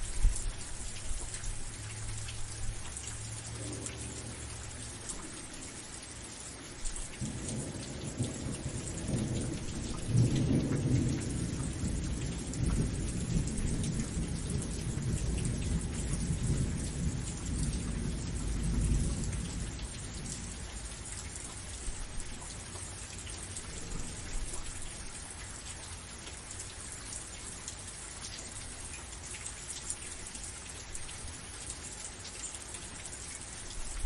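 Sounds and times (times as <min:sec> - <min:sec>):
steady rain falling: 0:00.0 - 0:34.0
thunder rumbling: 0:07.2 - 0:21.2, 0:23.6 - 0:25.1.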